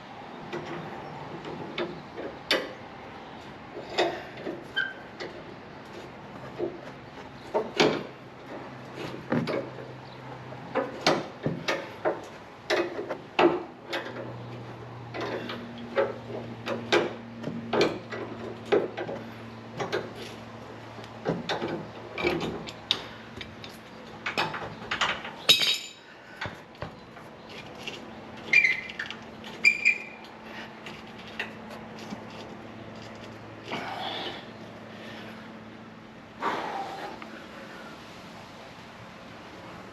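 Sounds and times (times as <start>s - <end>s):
metal tools clanking: 24.2s - 26.0s.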